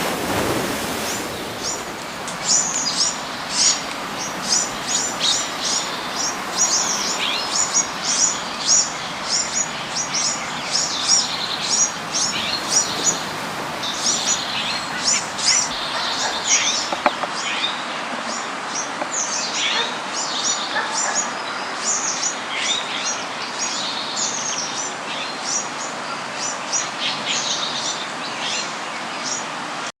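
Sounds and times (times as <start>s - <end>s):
gentle ocean waves: 0.0s - 22.5s
tropical birds chirping: 0.0s - 29.4s.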